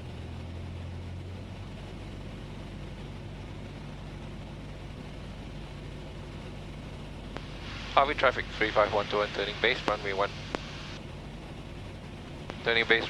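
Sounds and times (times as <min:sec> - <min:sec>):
propeller plane engine drone: 0:00.0 - 0:13.0.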